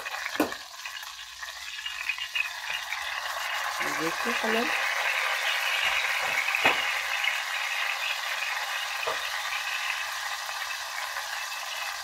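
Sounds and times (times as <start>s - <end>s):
food sizzling in hot oil: 0.0s - 12.0s
metal utensil knocking on pan: 0.3s - 0.6s, 6.2s - 6.9s.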